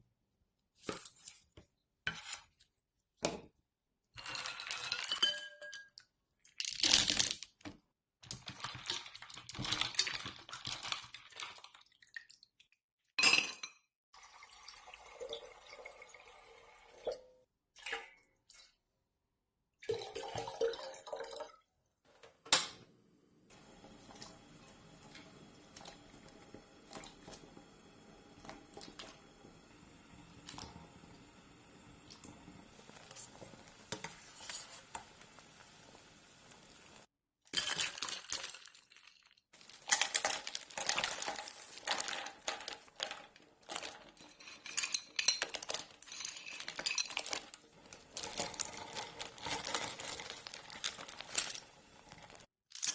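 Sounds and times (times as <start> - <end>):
liquid pouring and dripping: 14.2 - 18.8, 19.8 - 21.7, 23.5 - 35.4
dishes and utensils clinking: 43.7 - 47.6.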